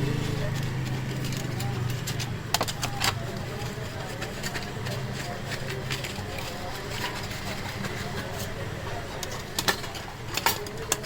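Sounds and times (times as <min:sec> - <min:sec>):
faint voices: 0:00.0 - 0:11.0
sharp clicks and taps on metal: 0:00.5 - 0:06.1.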